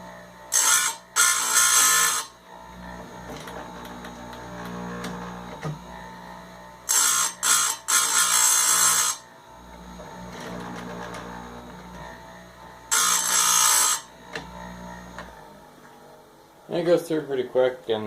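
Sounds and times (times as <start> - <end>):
grinder motor hum: 0.0 - 18.0
grinding wheel on chain: 0.6 - 2.3, 6.9 - 9.2, 12.9 - 14.1.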